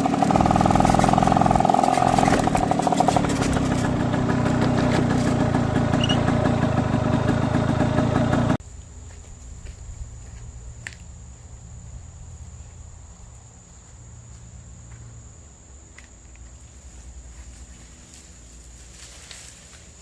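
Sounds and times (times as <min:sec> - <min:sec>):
insect drone: 0:00.0 - 0:08.5
loud engine running: 0:00.0 - 0:08.6.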